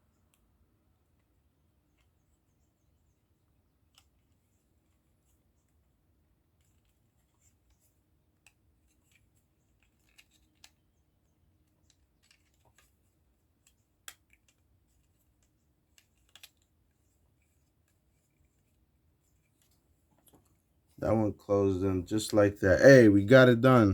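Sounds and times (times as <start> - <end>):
plastic model parts clicking: 8.4 - 10.8, 11.7 - 13.0, 13.6 - 16.7.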